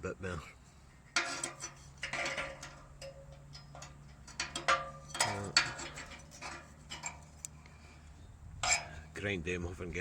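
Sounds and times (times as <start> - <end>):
metal tools clinking: 1.2 - 7.4.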